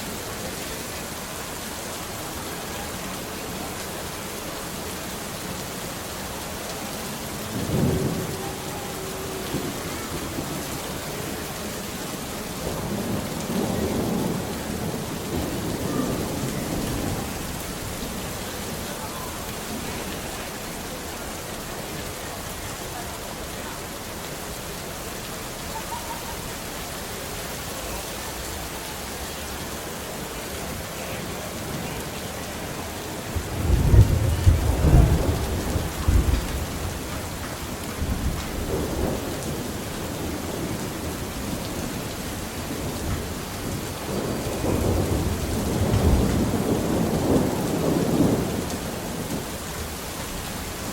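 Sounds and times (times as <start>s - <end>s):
steady rain falling: 0.0s - 50.9s
thunder rumbling: 7.0s - 18.8s, 31.2s - 50.0s.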